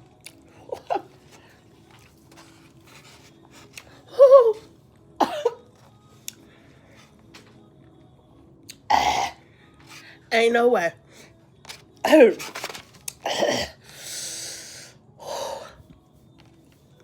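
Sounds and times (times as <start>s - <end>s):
cough-like cry: 5.2s - 5.7s, 8.9s - 9.4s, 13.2s - 13.8s.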